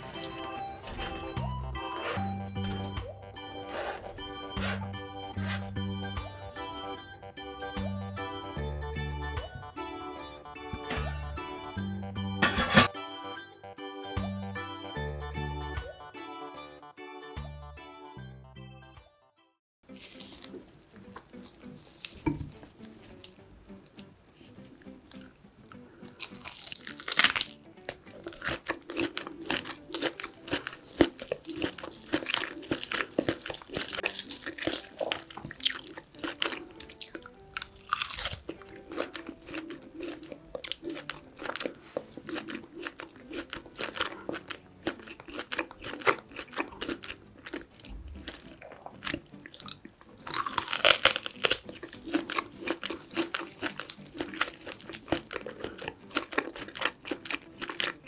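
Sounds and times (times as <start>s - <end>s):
wet chewing and crunching: 0.0s - 6.8s, 19.9s - 58.0s.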